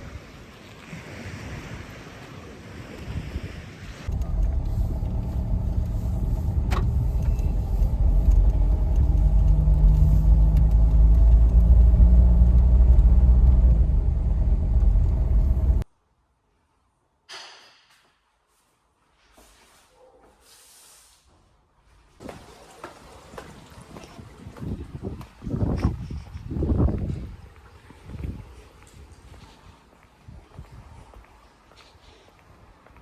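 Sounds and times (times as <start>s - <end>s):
loud low engine rumble: 4.1s - 15.8s.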